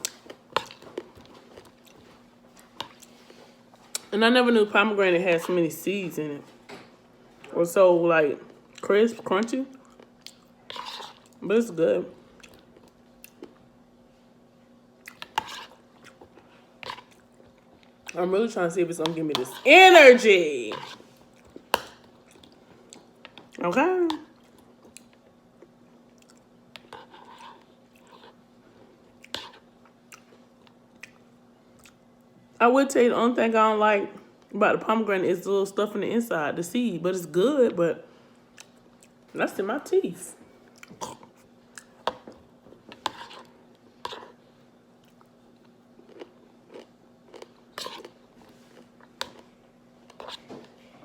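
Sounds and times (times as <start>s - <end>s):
person chewing: 0.0s - 4.1s, 9.8s - 11.4s, 15.0s - 18.2s, 20.7s - 23.6s, 24.4s - 28.4s, 29.0s - 31.2s, 31.8s - 32.0s, 45.0s - 50.4s.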